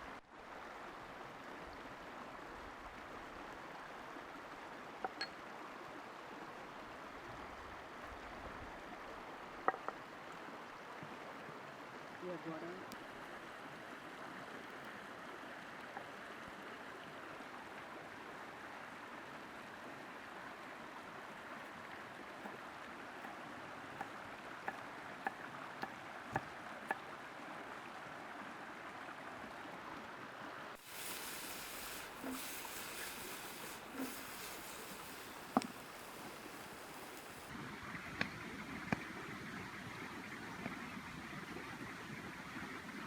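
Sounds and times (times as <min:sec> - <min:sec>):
burning wood crackling: 0:30.8 - 0:37.5
food sizzling: 0:30.8 - 0:37.5.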